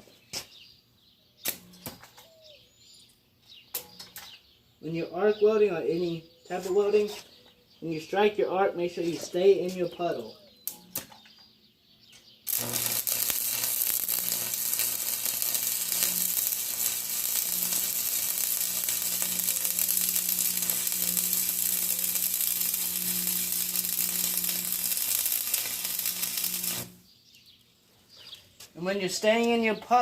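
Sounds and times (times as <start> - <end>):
arc welder crackling hiss: 12.5 - 27.1.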